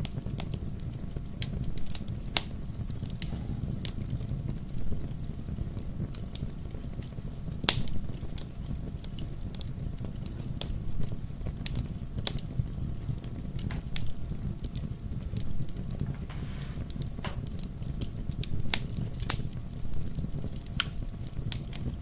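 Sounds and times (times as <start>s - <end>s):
wood fire crackling: 15.6s - 19.4s.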